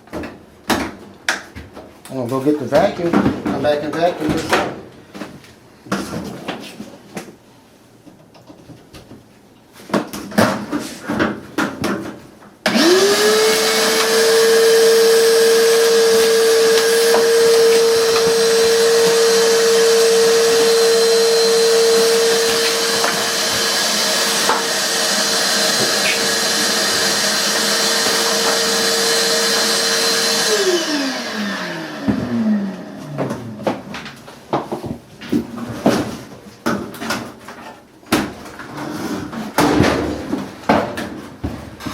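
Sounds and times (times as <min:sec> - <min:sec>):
vacuum cleaner motor whining: 0:12.7 - 0:33.9.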